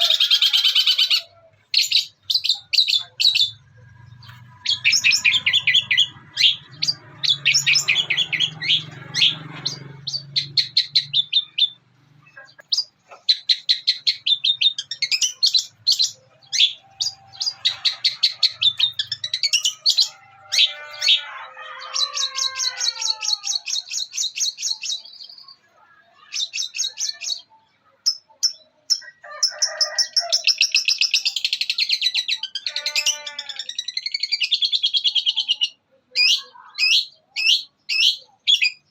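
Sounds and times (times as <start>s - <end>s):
bird chattering song: 0.0s - 21.3s, 21.9s - 29.2s, 30.2s - 38.9s.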